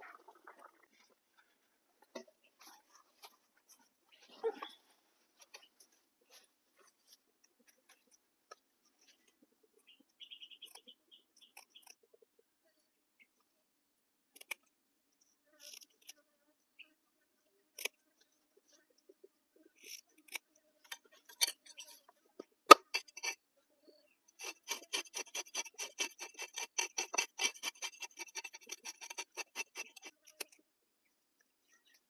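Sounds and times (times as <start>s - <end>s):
knife cutting food: 24.4s - 30.6s.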